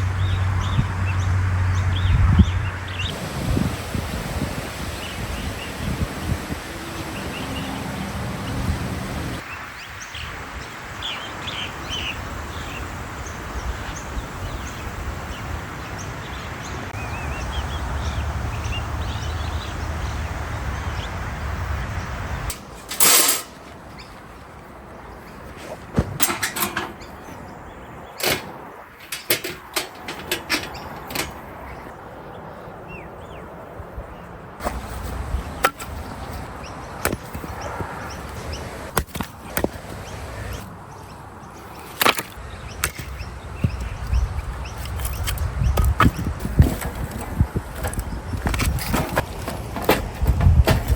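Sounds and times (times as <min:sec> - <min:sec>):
small birds chirping: 0:00.0 - 0:21.3, 0:30.4 - 0:49.5
breeze: 0:02.7 - 0:32.9.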